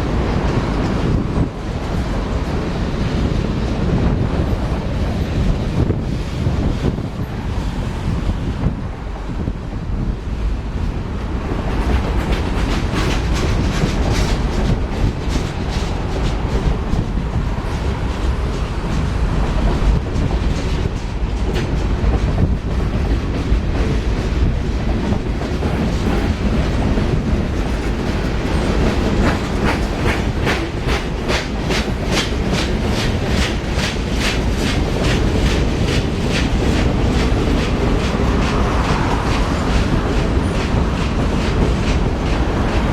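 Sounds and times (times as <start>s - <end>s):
train rumbling past: 0.0s - 42.9s
wheels clicking over rail joints: 11.3s - 42.9s.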